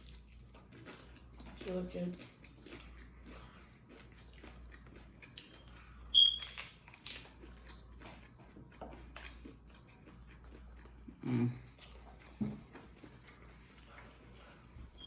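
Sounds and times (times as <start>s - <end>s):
crunching of crisp tortilla shells: 0.0s - 14.5s.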